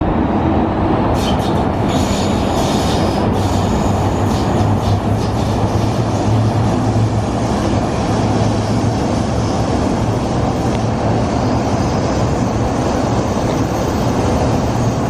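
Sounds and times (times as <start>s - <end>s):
train wheels rumbling on rail: 0.0s - 15.0s
high-pitched wheel squeal: 1.2s - 6.6s, 11.2s - 15.0s.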